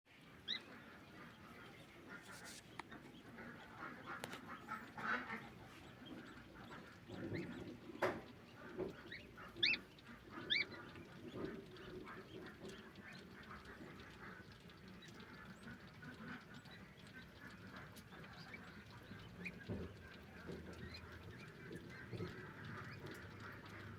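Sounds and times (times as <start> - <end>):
ducklings peeping: 0.2 - 23.9
faint sharp clicks: 2.1 - 3.0.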